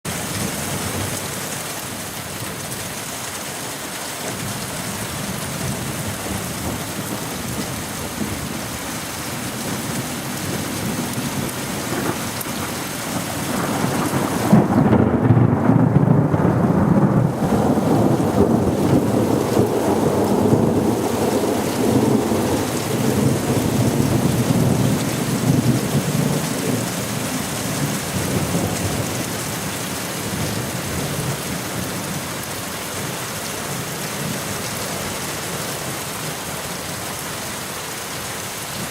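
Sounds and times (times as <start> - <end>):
steady rain: 0.1 - 38.9
thunder rolling: 5.6 - 31.9.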